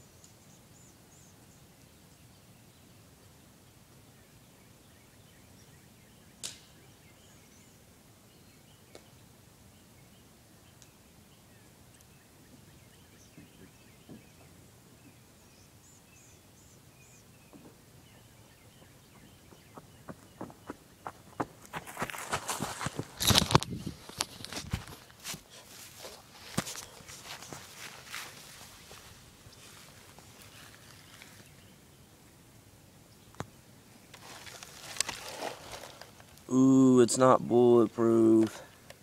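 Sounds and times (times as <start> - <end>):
bird chirps: 4.2 - 21.4
sharp crack: 6.4 - 6.7
footsteps on crunchy ground: 18.7 - 31.6, 34.2 - 36.4.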